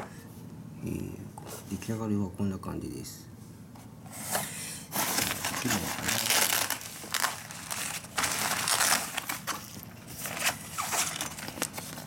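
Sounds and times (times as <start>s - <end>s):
packaging crinkling: 5.0s - 12.0s.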